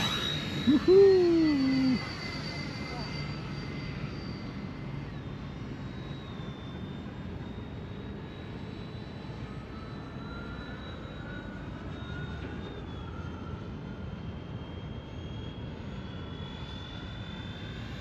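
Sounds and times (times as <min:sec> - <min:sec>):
model jet fans whining: 0:00.0 - 0:03.0.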